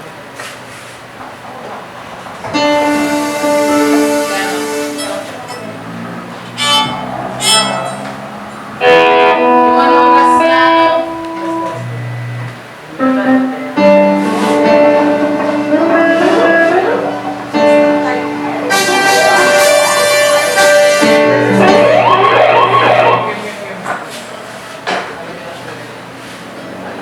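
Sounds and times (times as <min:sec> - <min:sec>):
worship band playing: 0:02.2 - 0:23.8.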